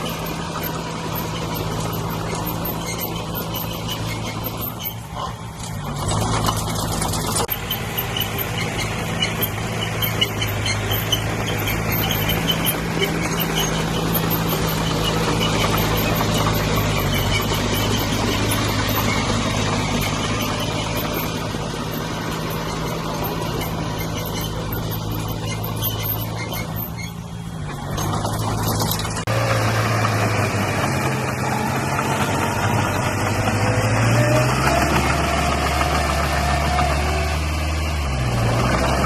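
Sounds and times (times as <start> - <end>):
high squeaks: 0.0 - 29.4
heavy diesel engine running: 0.0 - 39.0.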